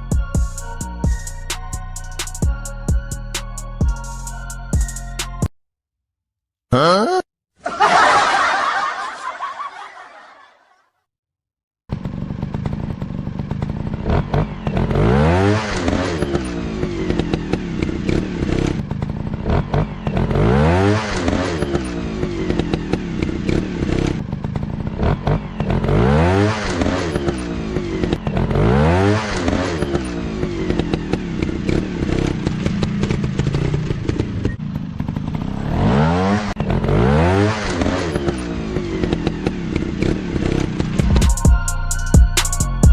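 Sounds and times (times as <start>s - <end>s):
motorcycle engines revving: 11.9s - 41.4s.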